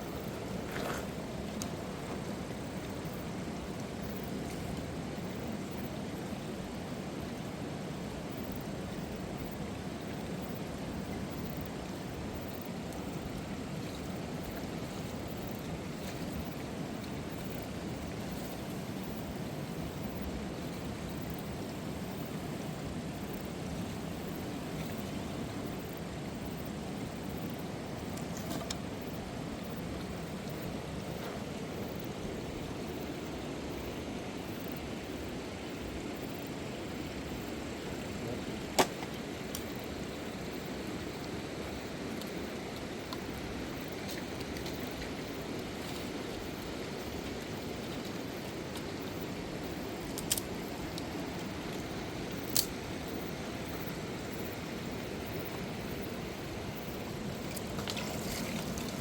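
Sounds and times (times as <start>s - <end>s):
river rushing: 36.2s - 59.0s.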